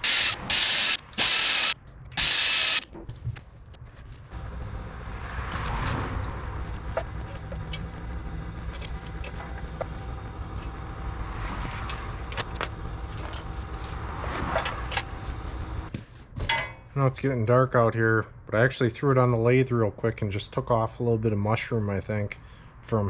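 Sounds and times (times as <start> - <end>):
tractor diesel engine running: 4.3 - 15.9.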